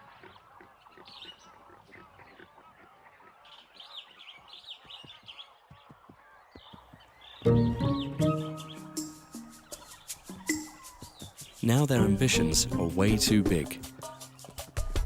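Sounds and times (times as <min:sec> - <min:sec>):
small birds chirping: 0:00.0 - 0:15.0
higher-pitched bird chirps: 0:07.3 - 0:12.0.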